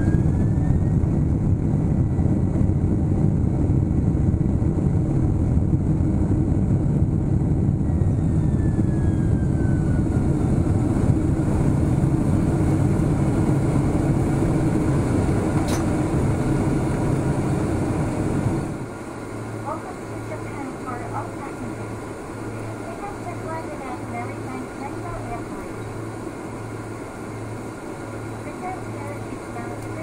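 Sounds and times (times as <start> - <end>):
aircraft cabin low rumble: 0.0 - 30.0
faint whine falling in pitch: 0.0 - 30.0
short click: 15.6 - 15.9.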